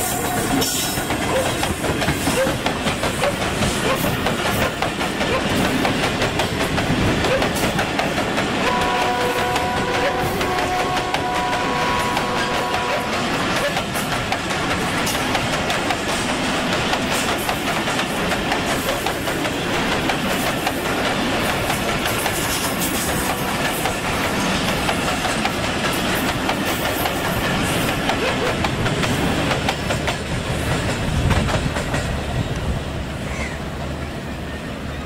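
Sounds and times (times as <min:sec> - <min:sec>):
train rushing past: 0:00.0 - 0:35.0
wheels clicking over rails: 0:09.5 - 0:32.2.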